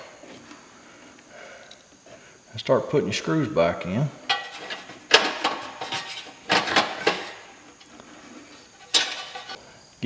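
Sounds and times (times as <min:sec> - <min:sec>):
metal parts clinking: 0:04.3 - 0:07.6, 0:08.6 - 0:09.6.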